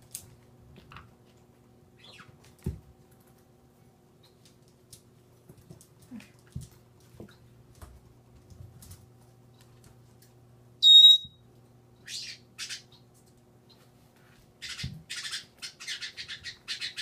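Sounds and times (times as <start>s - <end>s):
parrot harsh rasping calls: 10.8s - 11.3s
parrot whistling: 10.8s - 11.4s.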